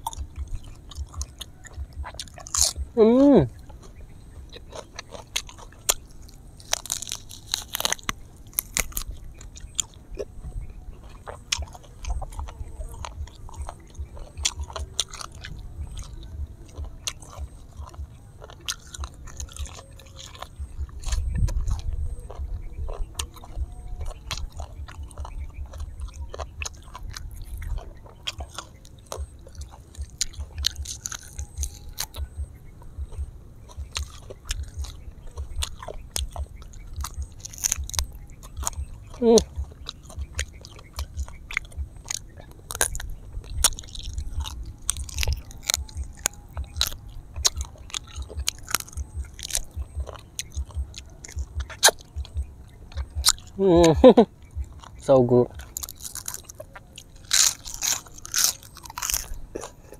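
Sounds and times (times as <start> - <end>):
person crunching and chewing food: 0.0 - 59.9.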